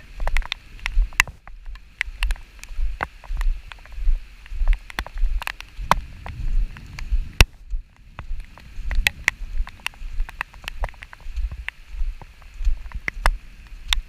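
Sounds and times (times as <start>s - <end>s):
faint rain hiss: 0.0s - 14.0s
raindrops tapping near microphone: 0.0s - 14.0s
wind rumbling on microphone: 0.0s - 14.0s.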